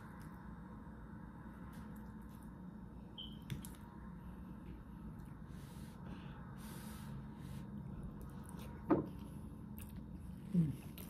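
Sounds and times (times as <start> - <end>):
low steady hum: 0.0 - 11.0
person chewing food: 7.7 - 11.0.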